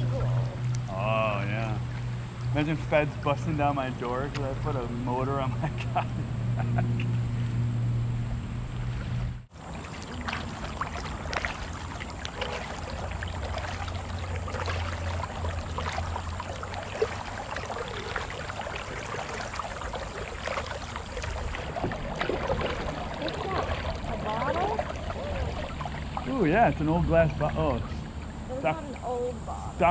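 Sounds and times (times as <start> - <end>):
water splashing around paddled kayak: 0.0 - 3.0, 8.8 - 29.4.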